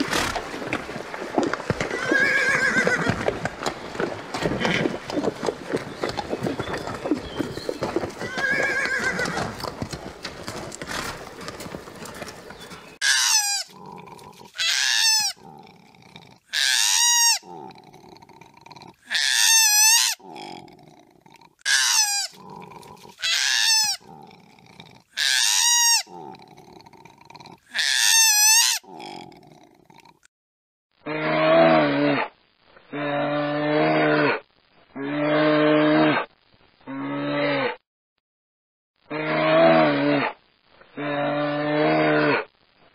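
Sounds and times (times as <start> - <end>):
horses grazing: 0.0 - 16.6, 17.3 - 25.2
low grunting: 13.7 - 14.6, 15.4 - 16.5, 17.4 - 19.1, 20.2 - 21.6, 22.3 - 23.2, 24.0 - 25.1, 26.1 - 27.7, 28.8 - 30.3.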